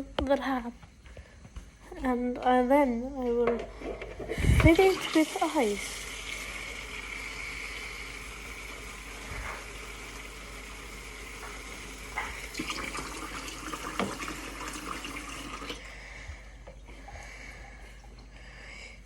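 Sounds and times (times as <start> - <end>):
tap water running into bowl: 3.6 - 15.8.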